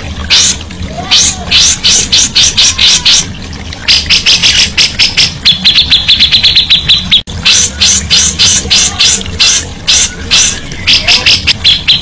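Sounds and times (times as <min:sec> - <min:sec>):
songbird singing: 0:03.9 - 0:12.0.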